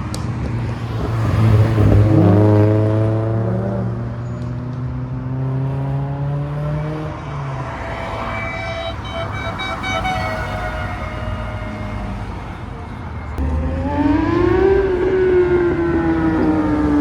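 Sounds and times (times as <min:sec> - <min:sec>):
steady engine hum: 0:07.5 - 0:17.0.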